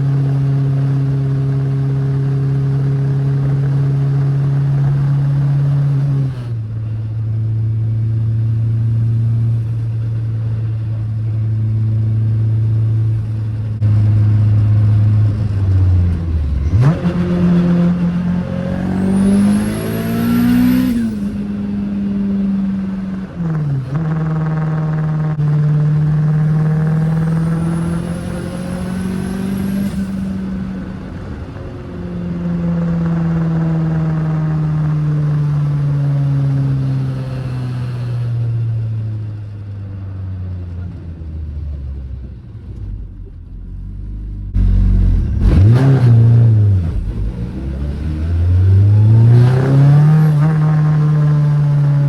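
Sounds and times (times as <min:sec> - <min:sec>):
car engine revving: 0:07.9 - 0:38.5, 0:43.0 - 0:52.0.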